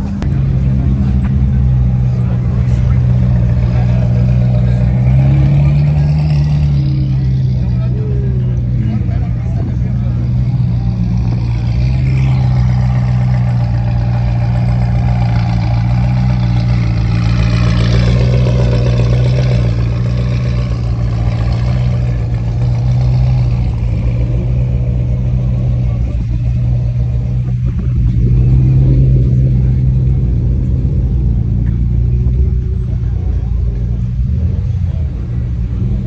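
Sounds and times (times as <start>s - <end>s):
car engine running: 0.0s - 36.0s.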